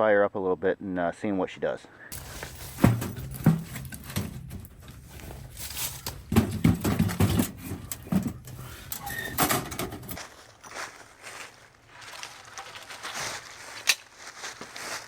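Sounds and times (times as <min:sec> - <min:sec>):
firewood knocking and clunking: 0:02.1 - 0:10.2
thuds: 0:02.1 - 0:10.2.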